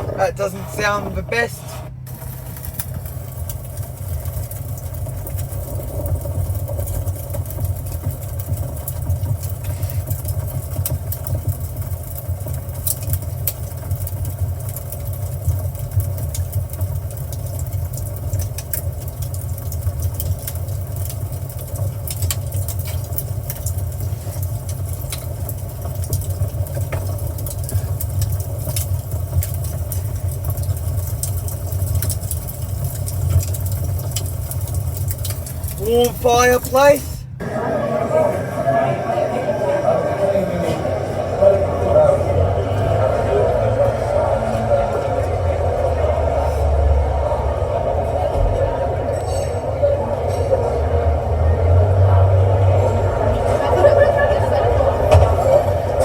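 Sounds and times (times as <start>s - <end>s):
nature sounds through car speakers: 0.0s - 3.0s, 35.8s - 37.5s
light crackles: 0.0s - 37.4s.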